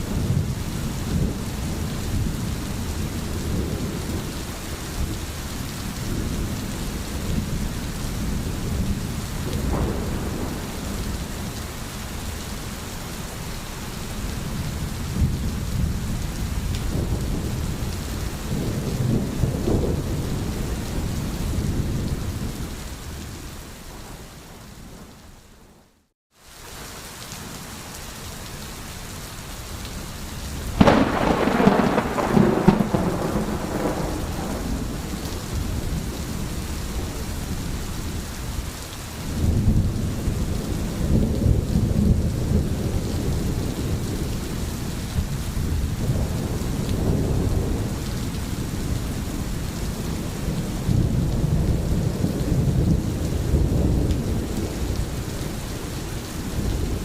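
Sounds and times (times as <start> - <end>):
low rolling thunder: 0.0 - 12.5, 14.2 - 24.2, 30.5 - 38.6, 39.2 - 57.0
steady rain: 0.0 - 57.0
sharp thunderclap: 9.5 - 11.6, 30.8 - 36.1.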